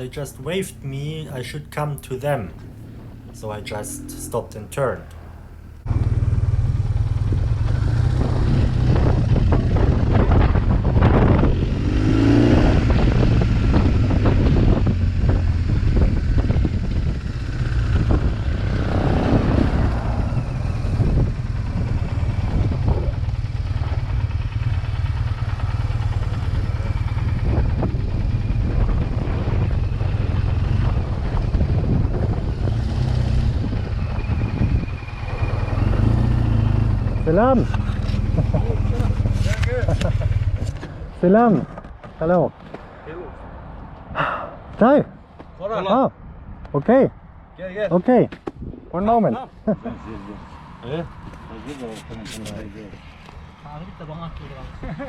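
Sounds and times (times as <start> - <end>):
motorcycle engine running: 2.5 - 4.3, 5.1 - 41.2.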